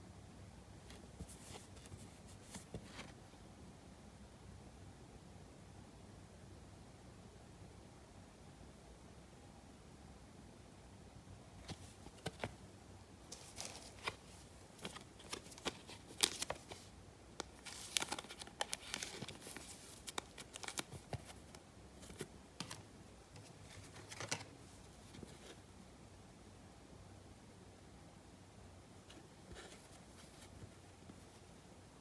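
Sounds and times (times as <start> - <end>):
packaging crinkling: 13.3 - 22.8.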